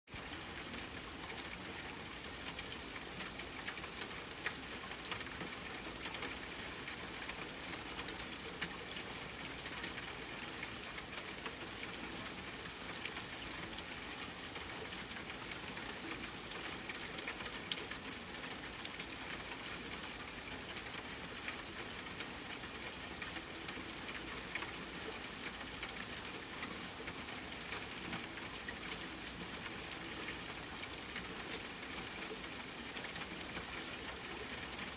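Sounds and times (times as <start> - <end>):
rain on a hard surface: 0.1 - 34.9.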